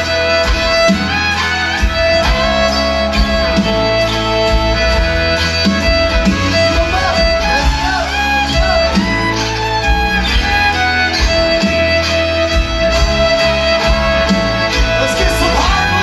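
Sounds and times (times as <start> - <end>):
bass guitar: 0.0 - 16.0
fiddle playing: 0.0 - 16.0
steady drum beat: 0.0 - 16.0.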